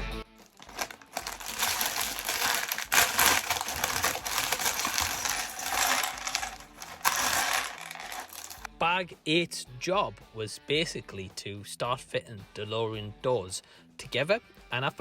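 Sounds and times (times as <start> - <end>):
plastic toy bricks clattering: 0.5 - 8.7.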